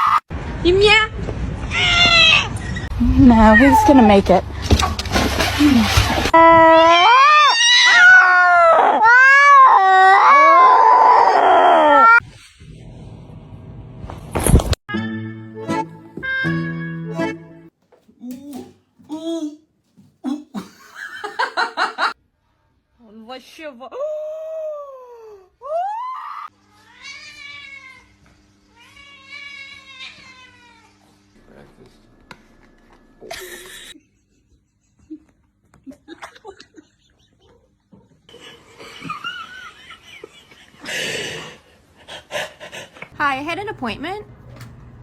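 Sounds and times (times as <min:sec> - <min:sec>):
cat yowling: 0:01.7 - 0:02.6, 0:03.3 - 0:04.2, 0:06.4 - 0:12.2, 0:25.8 - 0:28.1, 0:28.8 - 0:31.0
cat meowing: 0:06.6 - 0:12.2.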